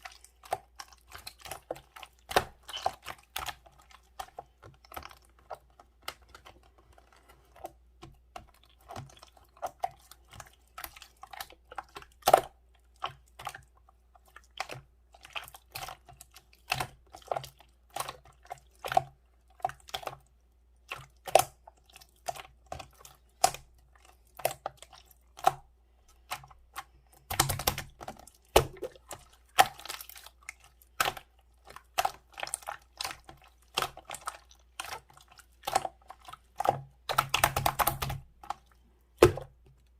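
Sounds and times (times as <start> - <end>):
clicking and tapping on keys: 37.1 - 38.2.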